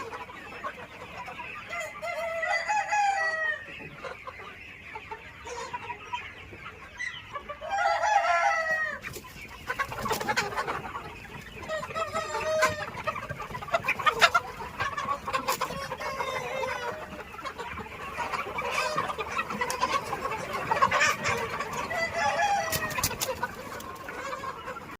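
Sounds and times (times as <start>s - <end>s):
chickens clucking: 0.0s - 24.9s.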